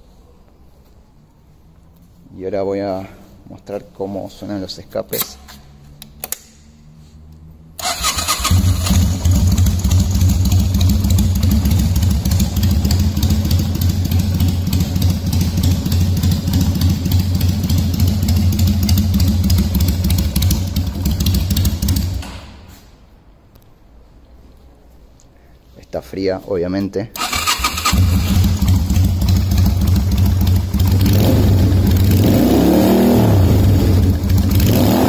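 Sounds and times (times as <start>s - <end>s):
motorcycle engine starting and idling: 7.8s - 22.6s, 27.2s - 35.0s.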